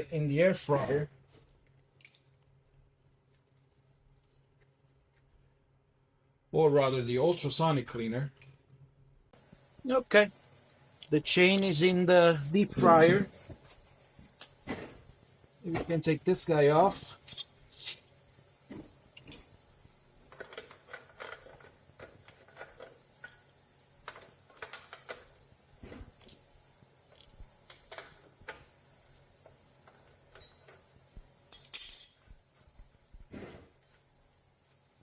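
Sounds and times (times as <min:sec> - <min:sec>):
light metallic clinks and knocks: 0:13.3 - 0:33.0, 0:33.7 - 0:34.5.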